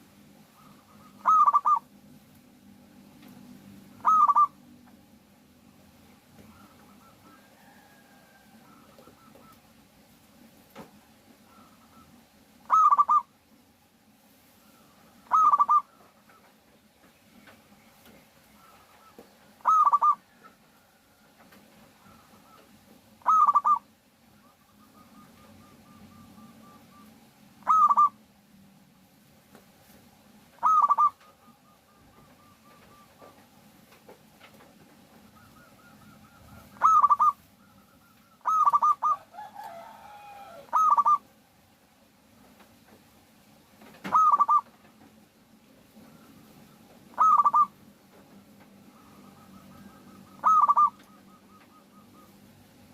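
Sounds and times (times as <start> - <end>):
fainter lower bird call: 0.4 - 1.9, 3.9 - 4.8, 6.4 - 9.8, 11.4 - 13.4, 14.5 - 28.3, 30.5 - 33.6, 35.1 - 41.4, 44.0 - 44.9, 45.9 - 47.8, 48.6 - 52.9
dove cooing: 0.4 - 2.0, 3.9 - 4.9, 6.3 - 9.8, 10.8 - 13.4, 14.6 - 16.6, 18.5 - 28.2, 30.5 - 33.5, 35.0 - 41.3, 43.9 - 45.0, 45.9 - 47.9, 48.7 - 52.9.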